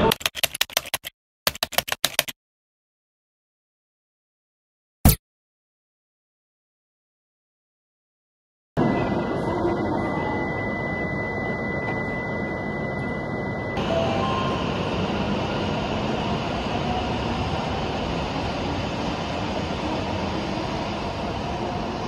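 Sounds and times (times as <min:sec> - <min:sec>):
thin high tone: 0:08.8 - 0:15.7
train rushing rumble: 0:13.2 - 0:22.0.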